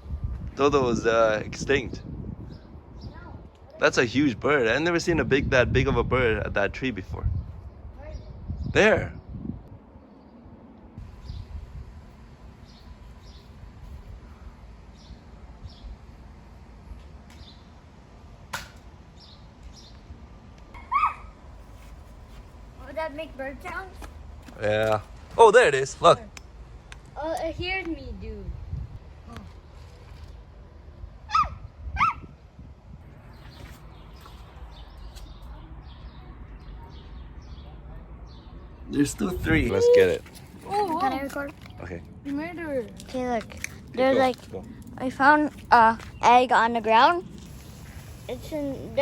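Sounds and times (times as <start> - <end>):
small birds chirping: 2.0 - 3.9, 7.1 - 17.9, 19.0 - 21.4, 33.0 - 49.0
large bird calling: 20.8 - 21.4.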